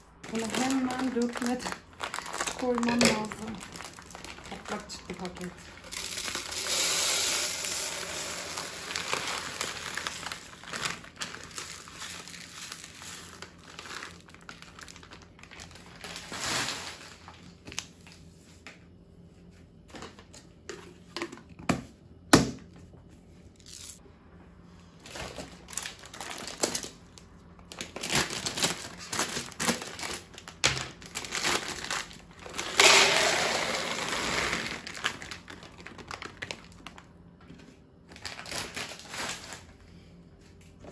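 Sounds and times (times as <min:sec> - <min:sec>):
plastic packets crinkling: 0:00.1 - 0:18.2, 0:25.0 - 0:37.2, 0:38.0 - 0:39.8.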